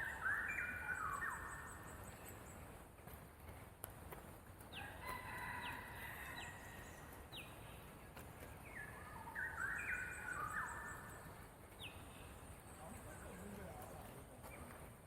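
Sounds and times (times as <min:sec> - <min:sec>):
birds calling: 0:08.6 - 0:13.8.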